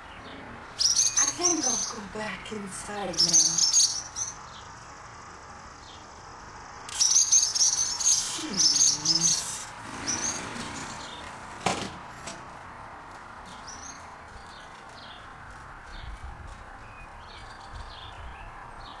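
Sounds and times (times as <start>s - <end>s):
swallows chirping in alarm: 0.0s - 2.1s, 2.8s - 5.1s, 6.9s - 11.3s.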